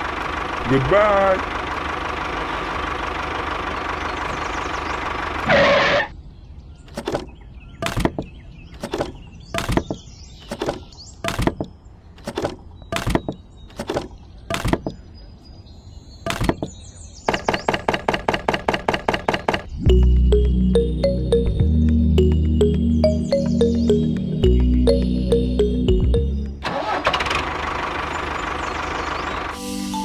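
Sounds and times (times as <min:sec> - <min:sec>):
engine-like drone: 0:00.0 - 0:06.1, 0:17.4 - 0:30.0
rhythmic music: 0:19.9 - 0:26.6.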